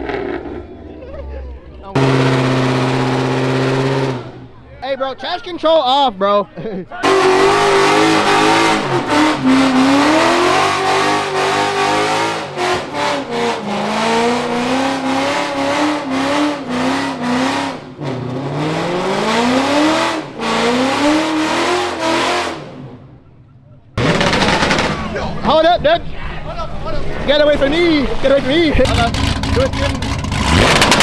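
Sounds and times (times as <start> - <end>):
car engine revving: 0.0 - 1.0, 1.9 - 4.7, 7.0 - 23.2, 24.0 - 25.6, 27.1 - 31.0
tyres spinning: 24.0 - 31.0.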